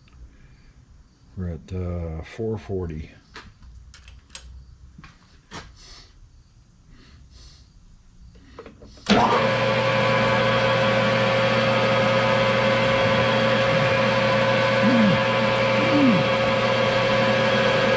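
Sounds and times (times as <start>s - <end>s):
metal lathe motor humming: 9.1s - 17.9s.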